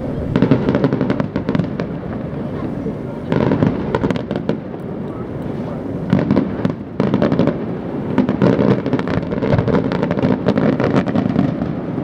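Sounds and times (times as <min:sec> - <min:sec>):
low rumble: 0:00.0 - 0:04.0
fireworks bangs and crackles: 0:00.0 - 0:12.0.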